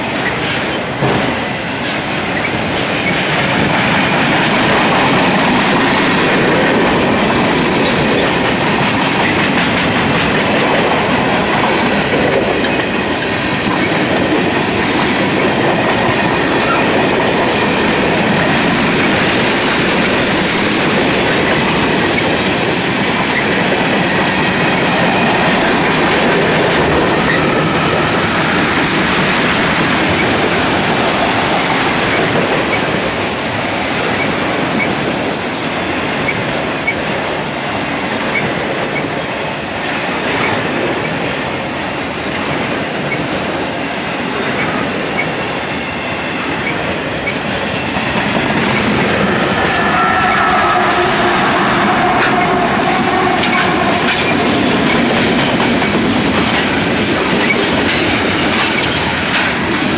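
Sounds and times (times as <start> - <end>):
freight cars rumbling on rails: 0.0 - 59.9
locomotive engine hum: 44.7 - 59.9.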